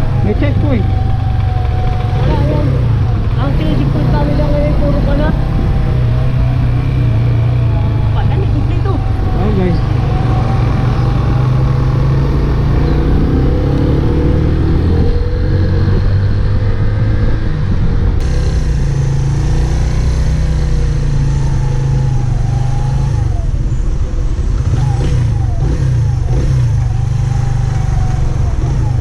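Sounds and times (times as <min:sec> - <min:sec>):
motorcycle engine: 0:00.0 - 0:29.0.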